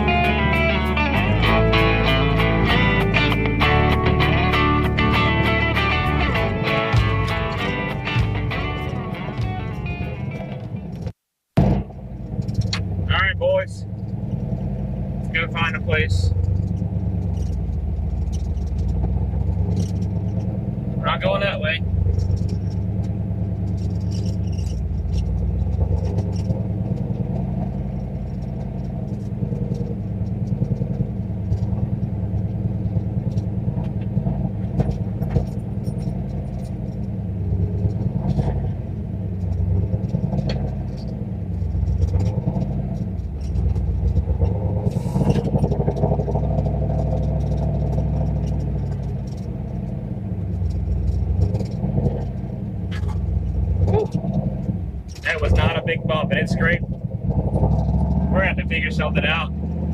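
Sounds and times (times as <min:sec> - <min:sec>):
sharp clatter: 0:00.0 - 0:59.9
turbocharged car engine revving: 0:00.0 - 0:59.9.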